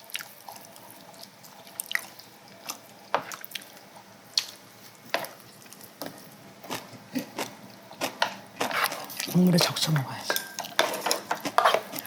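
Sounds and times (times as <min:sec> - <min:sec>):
chewing smacks: 0:00.0 - 0:09.3.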